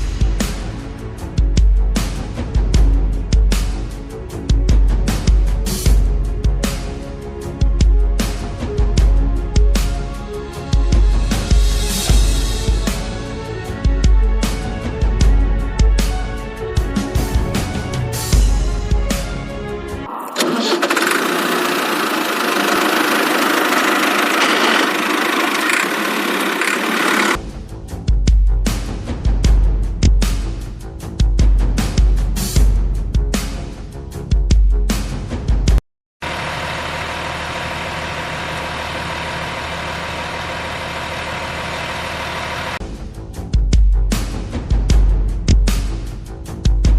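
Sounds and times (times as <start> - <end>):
rattly vehicle engine idling: 20.2 - 27.4, 36.2 - 42.8.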